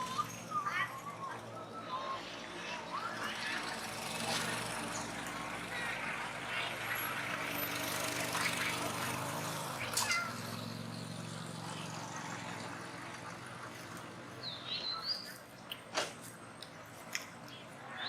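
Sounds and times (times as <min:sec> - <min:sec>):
monkey squealing: 0:09.8 - 0:10.4.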